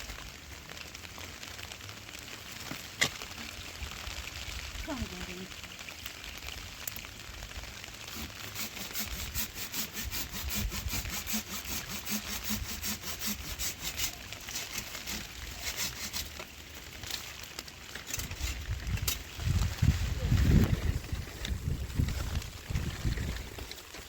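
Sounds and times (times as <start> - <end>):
rhythmic rasping scraping: 8.1 - 16.5.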